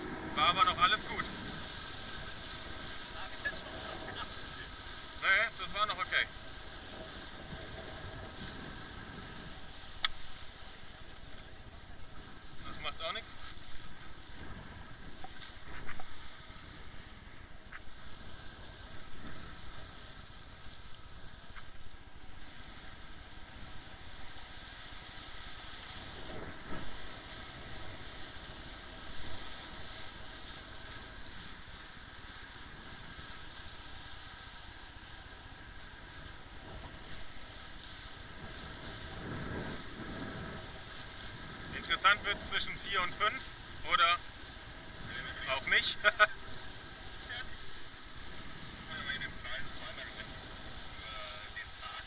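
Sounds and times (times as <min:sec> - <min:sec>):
outboard engine running: 0:00.0 - 0:52.0
water noise: 0:00.0 - 0:52.0
wind noise: 0:00.0 - 0:52.0
faint clicks: 0:09.9 - 0:11.6, 0:15.2 - 0:16.2, 0:17.6 - 0:18.0, 0:20.8 - 0:21.8.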